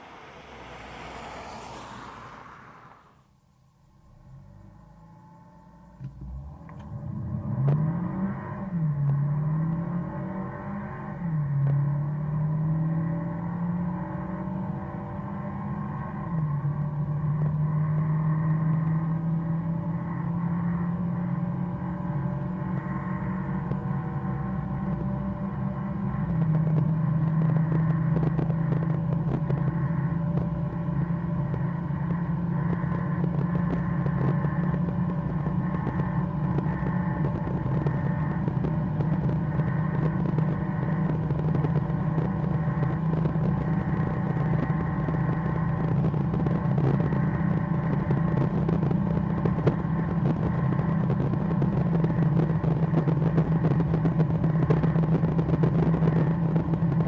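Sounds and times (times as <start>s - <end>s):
car engine droning: 0.0s - 57.0s
wind noise: 26.2s - 57.0s.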